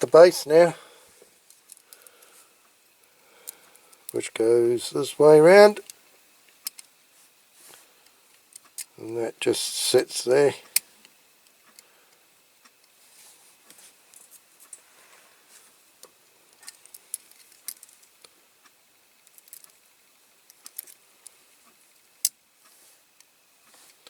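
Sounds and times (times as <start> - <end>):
small metal parts clicking: 16.5 - 18.2, 19.2 - 21.0.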